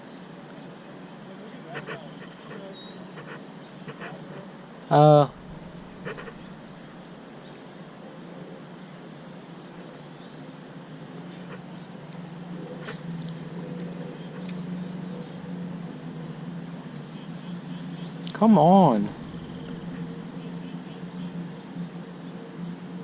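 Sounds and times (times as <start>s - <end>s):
low hum: 1.6s - 7.4s, 11.0s - 23.0s.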